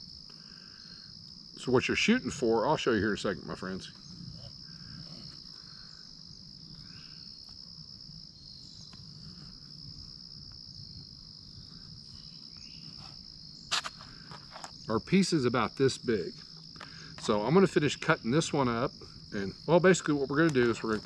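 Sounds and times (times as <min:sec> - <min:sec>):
insects buzzing trill: 0:00.0 - 0:21.0.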